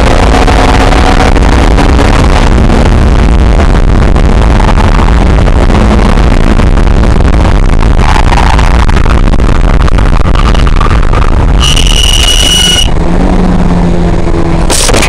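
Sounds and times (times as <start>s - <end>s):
wind buffeting the microphone: 0.0s - 11.6s
sports car engine roar: 0.0s - 15.0s.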